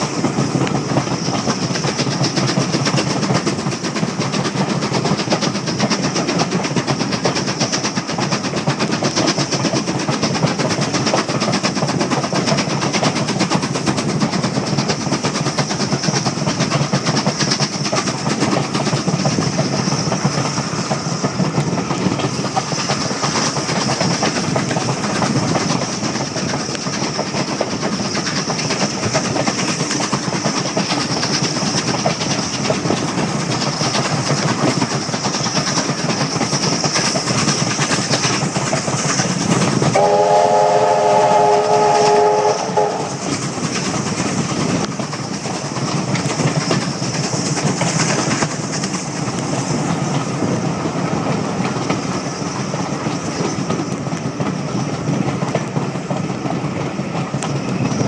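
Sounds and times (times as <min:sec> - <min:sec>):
train rushing noise: 0:00.0 - 0:58.0.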